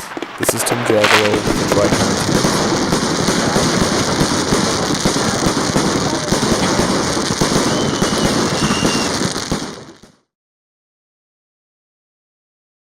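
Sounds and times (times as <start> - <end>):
fireworks crackling and popping: 0.0 - 10.3.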